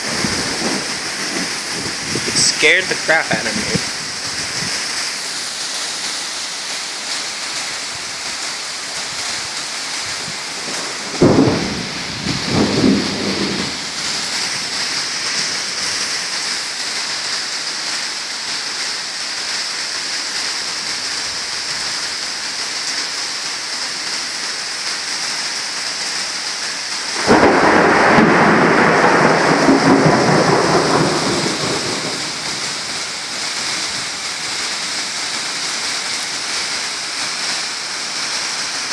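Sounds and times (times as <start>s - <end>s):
sharp thunder cracks: 0.0s - 4.6s, 10.5s - 16.3s, 27.2s - 32.9s
rumbling peal of thunder: 0.0s - 4.7s, 10.2s - 16.5s, 27.2s - 33.0s
heavy rain: 0.0s - 38.9s.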